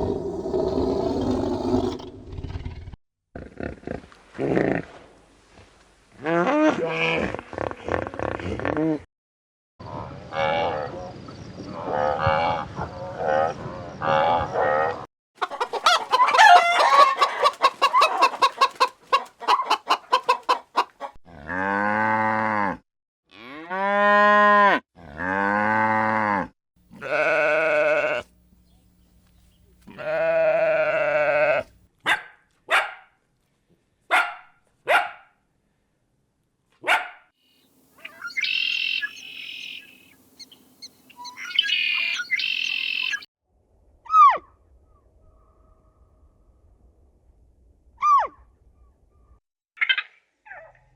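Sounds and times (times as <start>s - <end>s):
farm animal calls: 14.0s - 20.9s, 26.9s - 28.8s, 38.0s - 43.3s.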